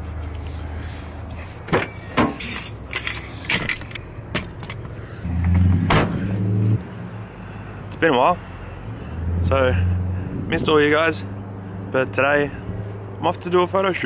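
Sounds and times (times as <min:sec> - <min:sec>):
engine running with low hum: 0:00.0 - 0:14.0.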